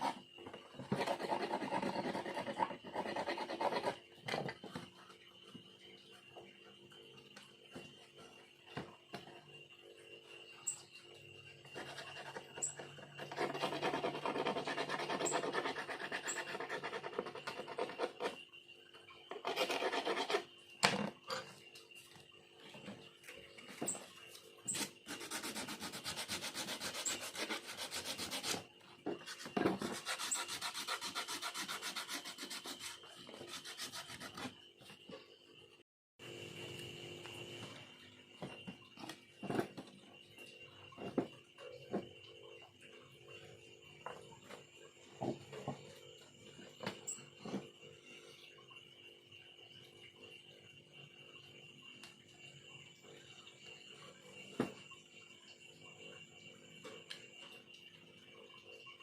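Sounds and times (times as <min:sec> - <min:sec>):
hand tool scraping bamboo: 0:19.4 - 0:20.4, 0:24.7 - 0:28.6, 0:29.3 - 0:34.5.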